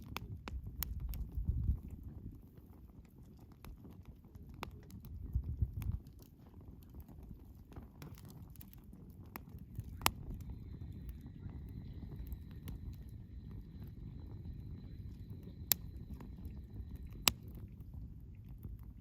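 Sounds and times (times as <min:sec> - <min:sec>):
sharp pops from burning wood: 0:00.0 - 0:19.0
wood fire burning: 0:00.0 - 0:19.0
faint high whistle: 0:10.2 - 0:17.2.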